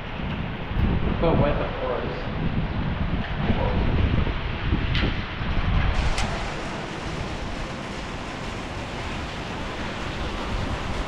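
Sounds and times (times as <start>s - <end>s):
heavy rain pouring: 2.3s - 11.0s.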